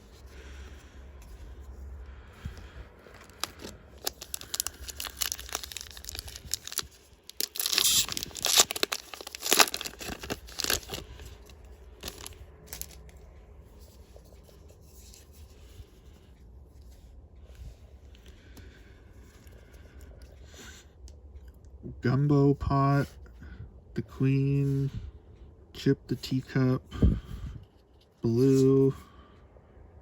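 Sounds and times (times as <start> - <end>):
foil wrapper tearing and crinkling: 3.2 - 13.0.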